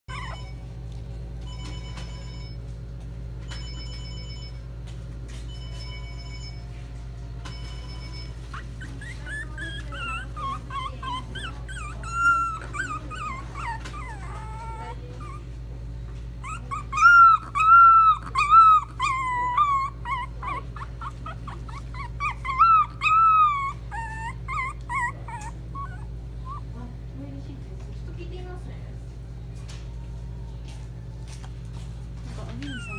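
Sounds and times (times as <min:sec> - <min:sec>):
puppy whining and yelping: 0:00.1 - 0:00.7, 0:07.6 - 0:15.6, 0:16.4 - 0:26.8, 0:32.4 - 0:32.9.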